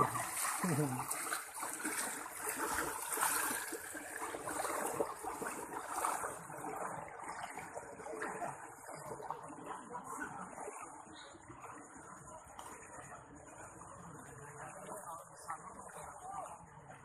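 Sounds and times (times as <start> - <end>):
river water rushing: 0.0 - 9.7.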